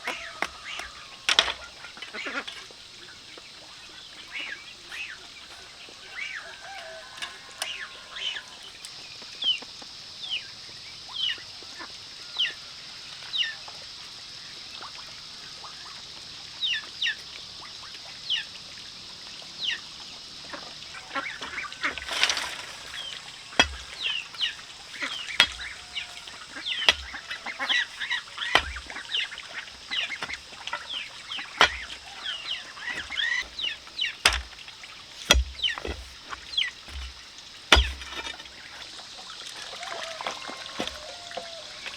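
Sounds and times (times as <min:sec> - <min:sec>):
knocks: 0:28.5 - 0:29.0, 0:32.9 - 0:34.6, 0:35.2 - 0:38.5.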